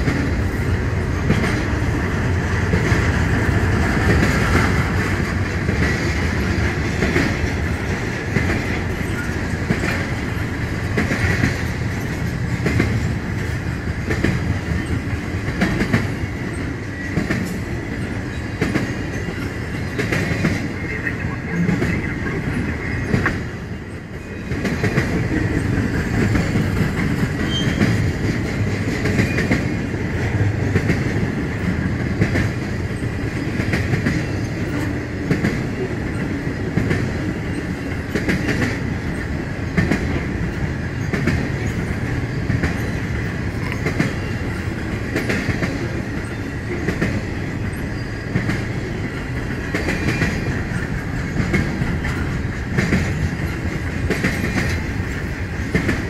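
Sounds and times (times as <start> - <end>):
steady train rumble: 0.0 - 56.0
train wheels clicking over rail joints: 0.0 - 56.0.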